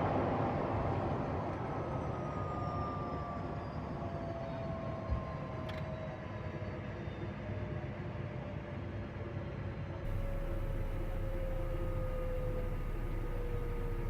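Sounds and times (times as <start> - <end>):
aircraft rolling on runway: 10.1 - 14.0
jet engines spooling down: 10.1 - 14.0.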